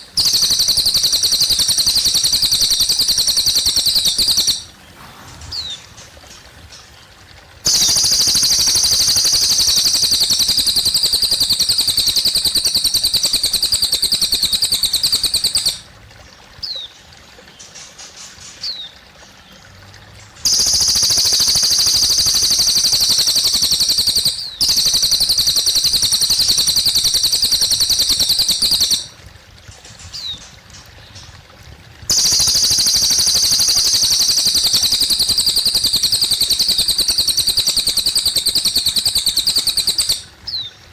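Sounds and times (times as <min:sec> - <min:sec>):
bird singing rapid trills: 0:00.0 - 0:06.0, 0:07.7 - 0:15.8, 0:20.4 - 0:29.1, 0:32.1 - 0:40.8
water trickling: 0:00.0 - 0:40.9.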